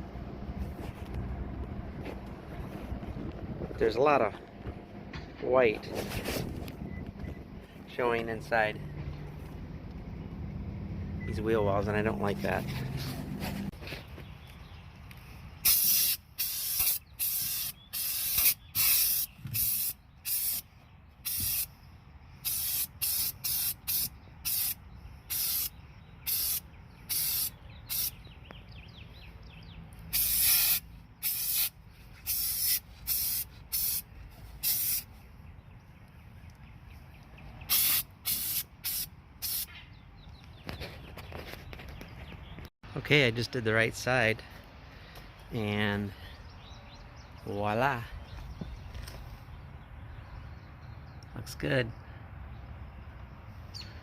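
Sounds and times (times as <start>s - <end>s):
aerosol can spraying in bursts: 15.6s - 21.7s, 22.4s - 25.7s, 26.3s - 28.2s, 30.1s - 35.1s, 37.7s - 39.7s.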